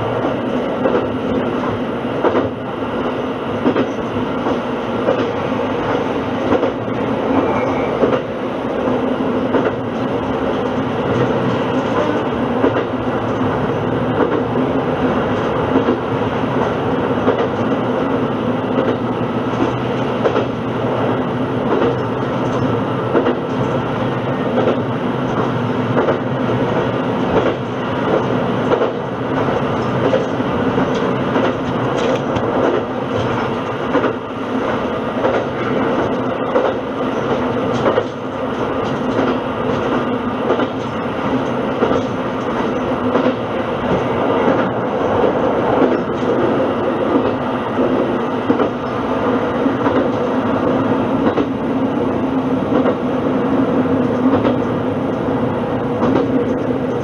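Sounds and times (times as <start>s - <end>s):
railcar engine and running noise: 0.0s - 57.0s
wheels clicking over rail joints: 24.4s - 49.0s.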